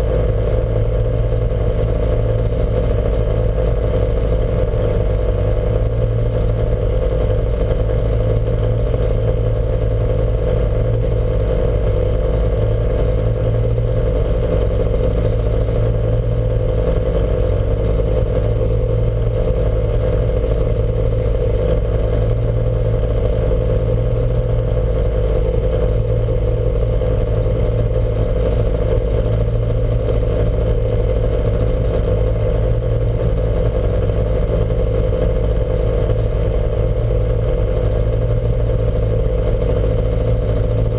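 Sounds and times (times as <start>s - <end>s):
race car engine running steadily: 0.0s - 40.9s.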